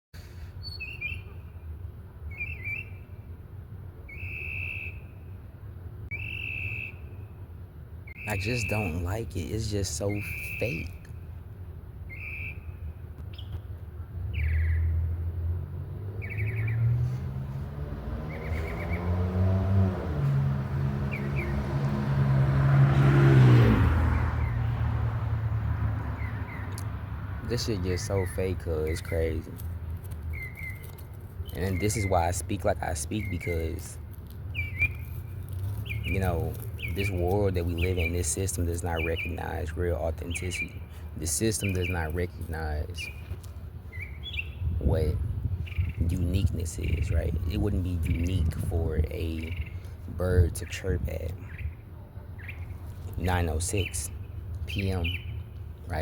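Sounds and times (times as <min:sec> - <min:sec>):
faint bird chirps: 0:00.4 - 0:01.7, 0:04.0 - 0:05.2, 0:06.1 - 0:07.4, 0:08.1 - 0:11.3
whistled bird-like calls: 0:04.1 - 0:05.1, 0:06.1 - 0:07.2, 0:10.2 - 0:11.0, 0:12.1 - 0:13.6
vehicle engine passing by: 0:14.8 - 0:29.4.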